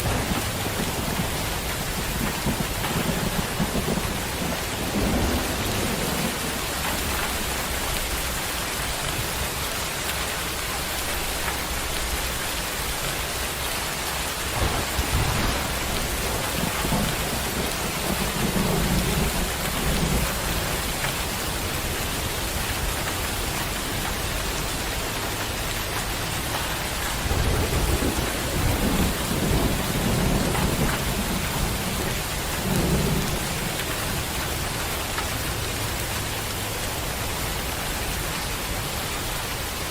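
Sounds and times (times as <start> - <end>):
rolling thunder: 0.0 - 7.8, 14.3 - 21.1, 27.1 - 33.9
steady rain falling: 0.0 - 39.9.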